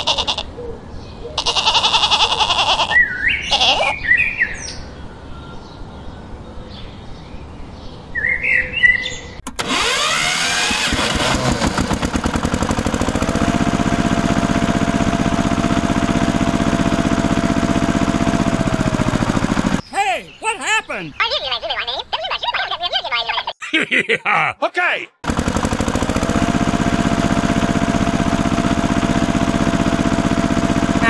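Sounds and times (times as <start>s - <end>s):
toy tractor engine rattling: 0.0s - 0.4s, 1.4s - 2.9s, 9.5s - 19.8s, 25.2s - 31.0s
birds chirping: 0.0s - 9.4s, 19.7s - 24.6s.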